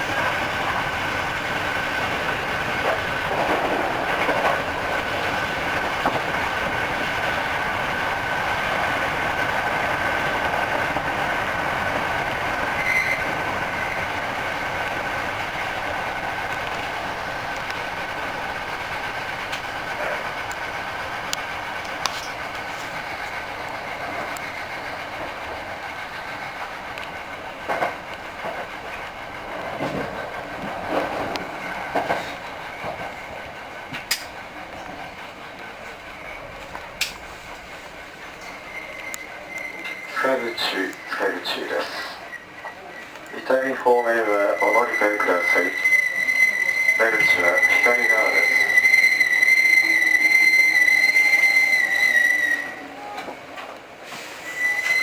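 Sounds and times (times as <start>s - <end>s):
train wheels clacking over rail joints: 0.0s - 41.1s
train running noise: 0.0s - 55.0s
train brakes squealing: 12.1s - 14.3s, 36.2s - 55.0s.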